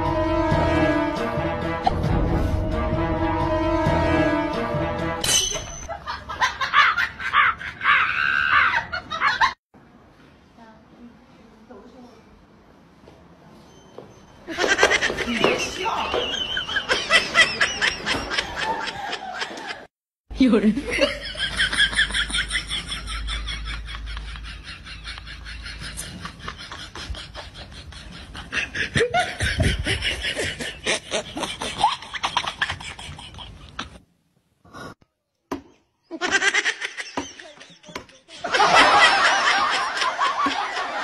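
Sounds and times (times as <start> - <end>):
people laughing: 5.9 - 9.6, 14.5 - 19.9, 20.8 - 34.0, 36.1 - 41.0.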